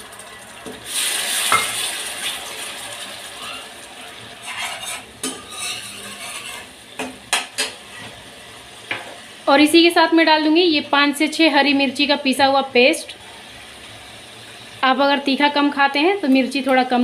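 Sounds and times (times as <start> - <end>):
sizzling in hot oil: 0.0 - 17.0
metal spoon scraping a pan: 4.3 - 8.2.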